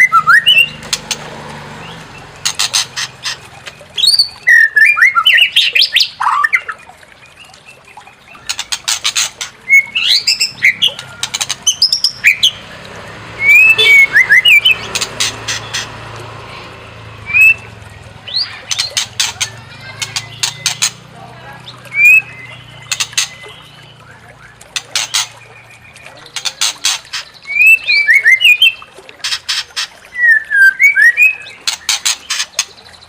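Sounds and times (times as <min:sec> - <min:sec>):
bird singing whistled phrases: 0:00.0 - 0:00.8, 0:04.0 - 0:06.8, 0:09.7 - 0:12.6, 0:13.4 - 0:14.8, 0:17.2 - 0:19.0, 0:21.6 - 0:24.6, 0:27.3 - 0:28.9, 0:30.0 - 0:31.7.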